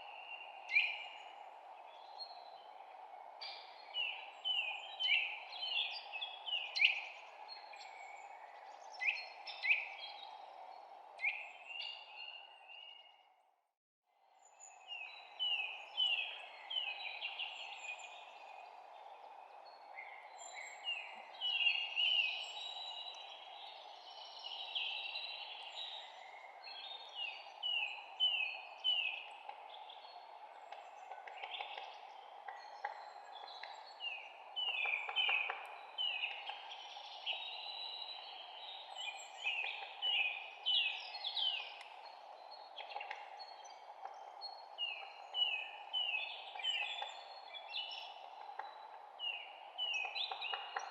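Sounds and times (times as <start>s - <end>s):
songbirds chirping and singing: 14.4s - 50.9s.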